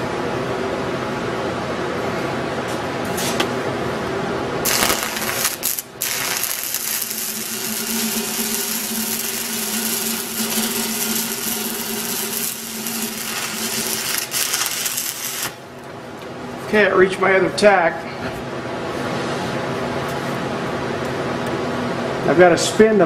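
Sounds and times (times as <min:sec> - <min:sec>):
steady hum: 0:00.0 - 0:23.0
welding arc crackling: 0:04.6 - 0:15.8.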